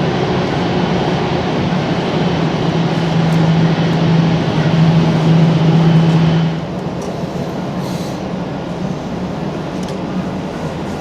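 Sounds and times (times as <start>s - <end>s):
loud low hum: 0.0s - 6.8s
jet engines rumbling: 0.0s - 11.0s.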